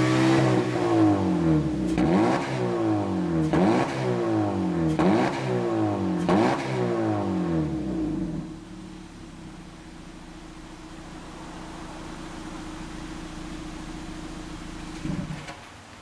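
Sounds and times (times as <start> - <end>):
car engine idling: 0.0 - 3.7, 7.2 - 16.0
car engine revving: 0.0 - 15.5.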